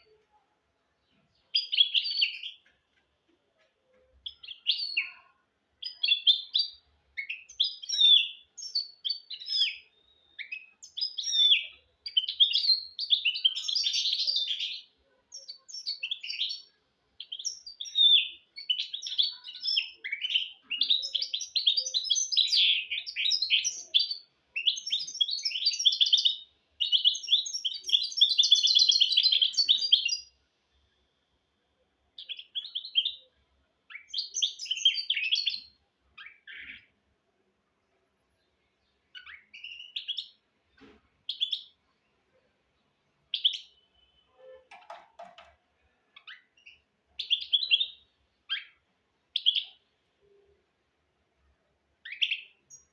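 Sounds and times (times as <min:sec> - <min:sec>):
finch singing trills: 0:01.4 - 0:02.7, 0:04.2 - 0:30.4, 0:33.9 - 0:36.9, 0:43.3 - 0:45.0, 0:46.1 - 0:50.5, 0:52.0 - 0:52.9.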